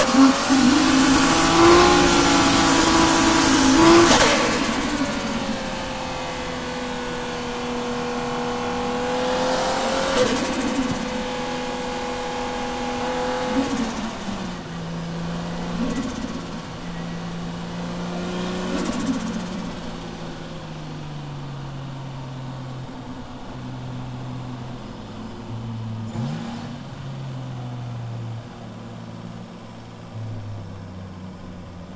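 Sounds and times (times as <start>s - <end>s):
engine rev blip: 0.0s - 20.4s
car engine at low revs: 0.0s - 31.9s.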